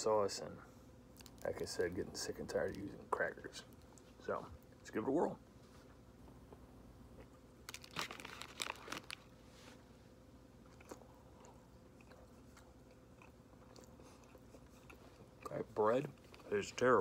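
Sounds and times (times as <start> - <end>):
person chewing crunchy sandwich: 7.1 - 16.5.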